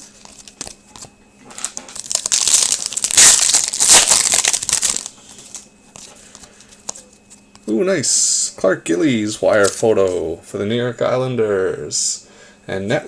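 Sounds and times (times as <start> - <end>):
wrapper crinkling: 0.2 - 5.7.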